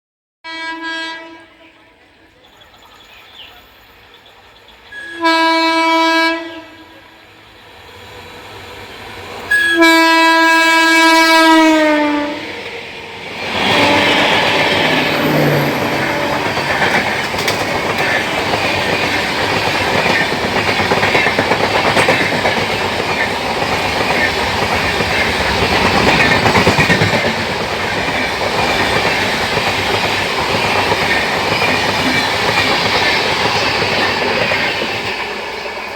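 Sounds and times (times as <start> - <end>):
train horn blasts: 0.4 - 1.9, 4.9 - 7.2, 9.5 - 12.5, 13.6 - 16.8
train wheels clattering over rails: 12.5 - 35.9.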